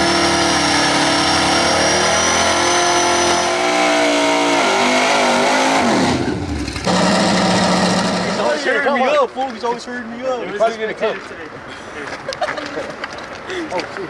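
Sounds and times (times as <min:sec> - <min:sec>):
race car engine revving high: 0:00.0 - 0:08.7.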